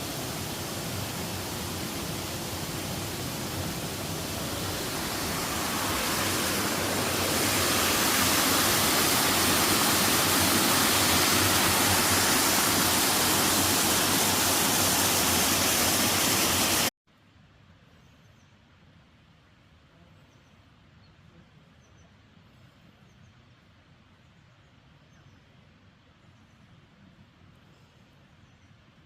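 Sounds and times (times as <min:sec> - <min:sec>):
water rushing: 0:00.0 - 0:16.9.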